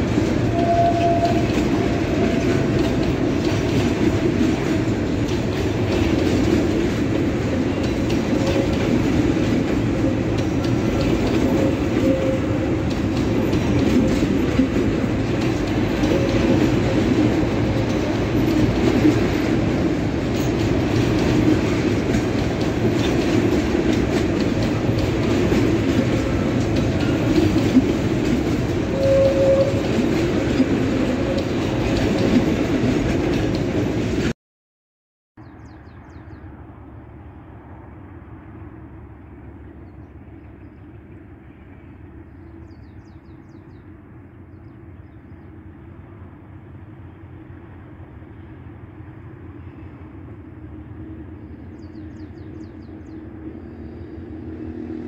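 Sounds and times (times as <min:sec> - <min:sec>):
freight train wagons rumbling: 0:00.0 - 0:34.3, 0:35.4 - 0:55.0
outdoor background noise: 0:00.0 - 0:34.3, 0:35.4 - 0:55.0.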